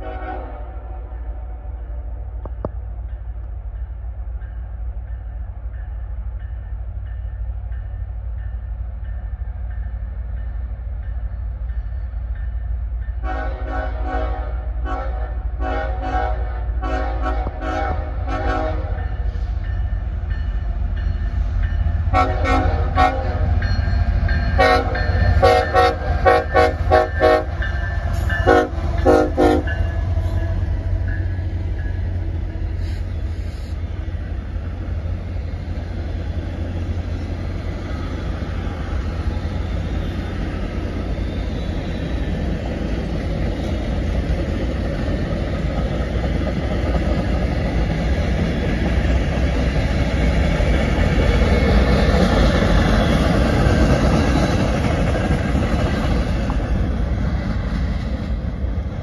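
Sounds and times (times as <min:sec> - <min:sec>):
locomotive horn blasts: 0:00.0 - 0:01.7, 0:13.2 - 0:19.1, 0:22.1 - 0:23.5, 0:24.6 - 0:31.1
train rumble and rail clatter: 0:00.0 - 0:59.0.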